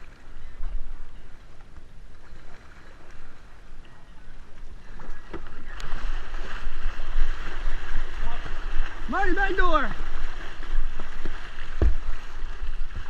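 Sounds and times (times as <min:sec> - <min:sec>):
kayak paddles splashing: 0:00.0 - 0:13.0
wind rumble on microphone: 0:09.7 - 0:13.0.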